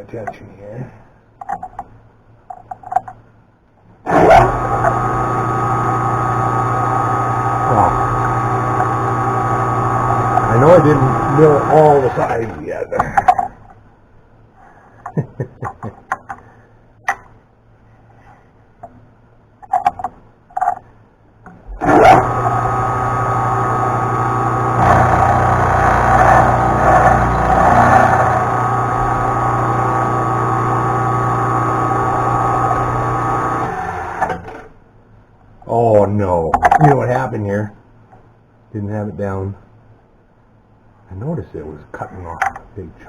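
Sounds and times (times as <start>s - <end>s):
milling machine motor running: 4.1s - 12.6s, 21.8s - 34.7s.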